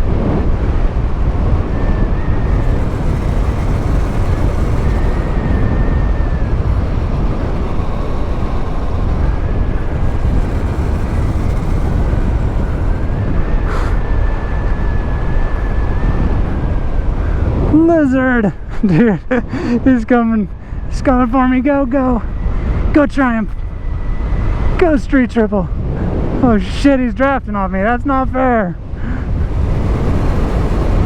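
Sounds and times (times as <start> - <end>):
motorcycle tyre noise: 0.0 - 15.7, 28.9 - 31.0
faint high whine: 0.0 - 16.8, 28.9 - 31.0
wind rushing over microphone: 0.0 - 31.0.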